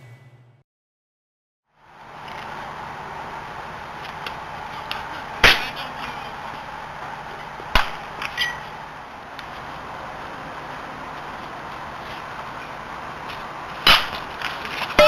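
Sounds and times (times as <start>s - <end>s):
field noise: 1.7s - 15.0s
baseball smacks: 7.7s - 8.3s, 13.8s - 14.4s.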